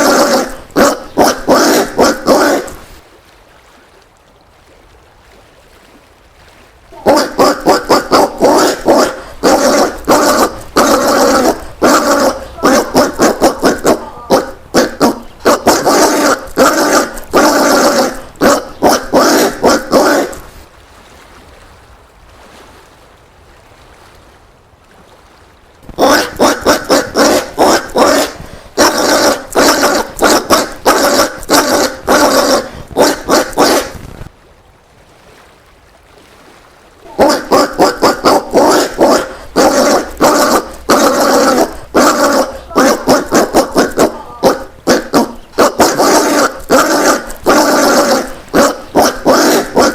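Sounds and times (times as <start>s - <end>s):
peccary harsh pulsed calls: 0.0s - 3.0s, 7.0s - 20.6s, 25.9s - 34.0s, 37.2s - 49.9s.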